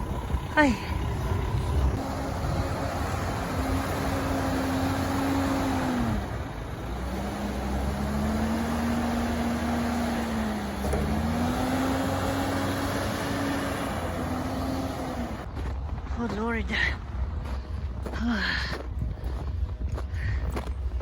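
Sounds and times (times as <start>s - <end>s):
engine running under load: 0.0s - 21.0s.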